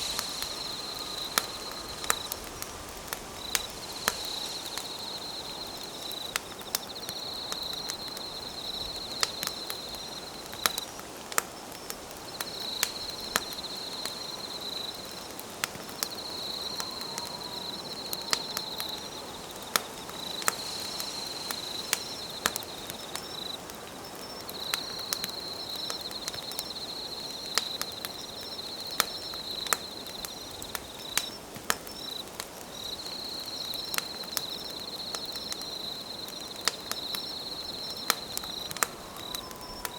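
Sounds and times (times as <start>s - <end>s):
campfire crackling and popping: 0.0s - 39.9s
night insects trilling: 0.0s - 39.9s.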